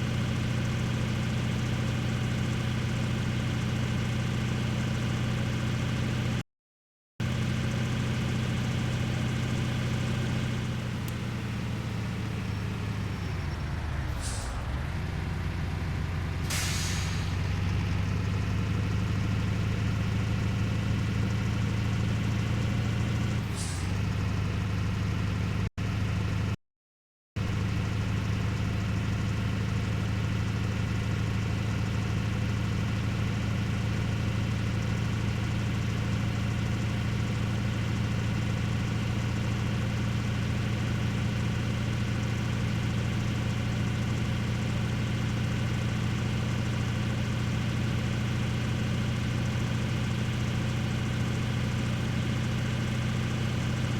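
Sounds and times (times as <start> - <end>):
vehicle engine running: 0.0 - 6.4, 7.2 - 26.6, 27.4 - 53.9
short hisses: 14.1 - 14.8, 16.4 - 17.4, 23.5 - 23.9.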